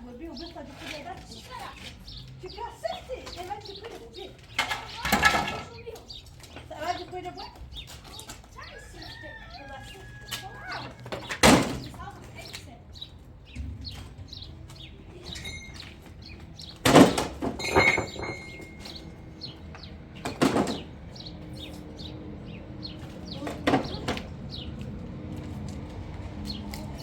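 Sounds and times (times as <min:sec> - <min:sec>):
small birds chirping: 0:00.0 - 0:27.0
loud scraping clatters: 0:04.4 - 0:05.8, 0:13.5 - 0:24.7.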